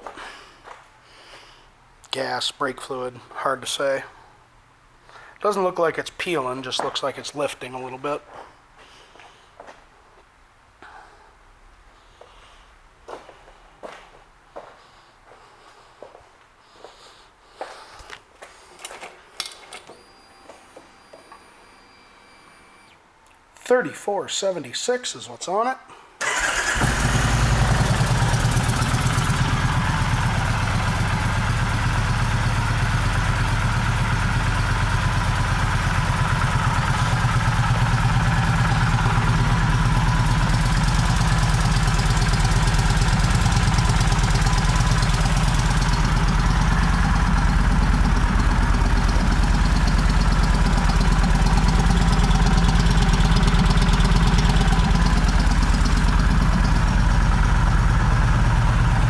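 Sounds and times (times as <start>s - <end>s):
motorcycle engine idling: 26.2s - 59.0s.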